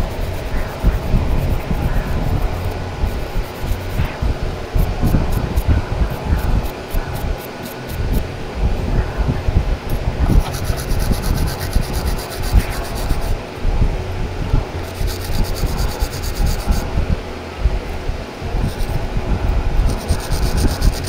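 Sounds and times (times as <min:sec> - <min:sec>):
fast even ticking: 0:00.0 - 0:08.3, 0:09.9 - 0:13.4, 0:14.5 - 0:17.1, 0:19.8 - 0:21.0.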